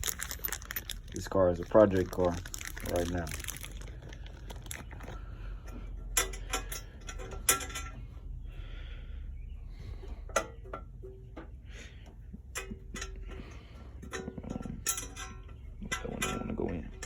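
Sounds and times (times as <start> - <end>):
metal tools clinking: 0.0 - 8.1, 12.5 - 17.0.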